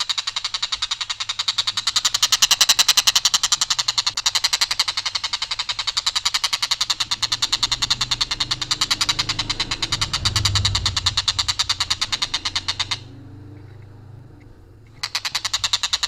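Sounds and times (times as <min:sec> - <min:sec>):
kingfisher rattling call: 0:00.0 - 0:16.0.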